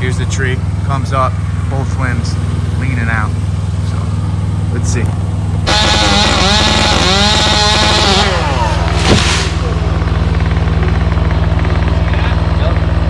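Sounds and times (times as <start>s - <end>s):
low engine hum: 0.0s - 13.0s
sharp crack of wood: 5.7s - 9.9s
chainsaw cutting at full throttle: 5.7s - 10.5s.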